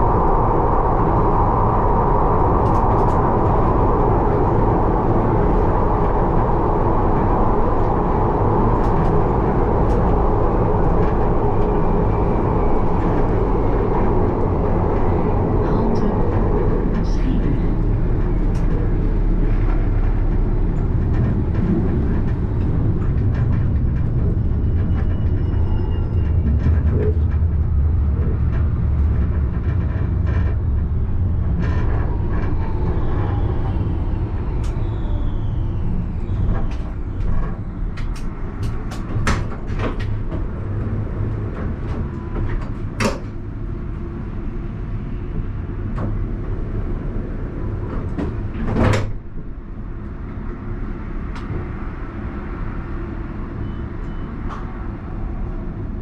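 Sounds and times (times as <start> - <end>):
tram motor whine: 0.0 - 56.0
tram rumbling: 0.0 - 56.0
sharp clicks and knocks: 36.4 - 43.4.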